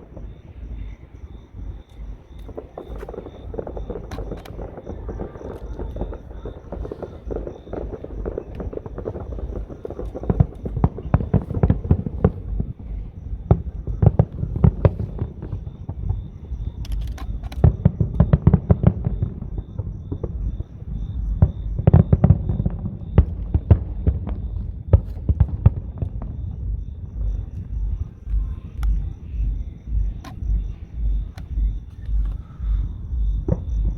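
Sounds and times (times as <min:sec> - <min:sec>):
fireworks cracking pops: 0:00.0 - 0:33.9
low rumble: 0:00.0 - 0:33.9.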